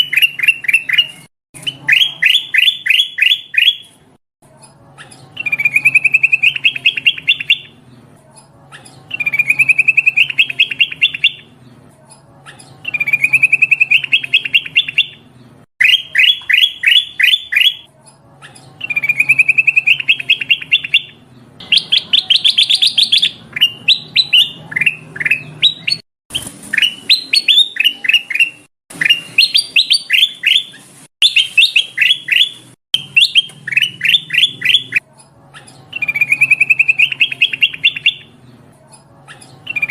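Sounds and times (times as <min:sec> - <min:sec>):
bulbul chirping: 0:00.0 - 0:04.0, 0:05.0 - 0:07.8, 0:08.8 - 0:11.5, 0:12.5 - 0:15.2, 0:15.8 - 0:35.0, 0:35.6 - 0:38.3.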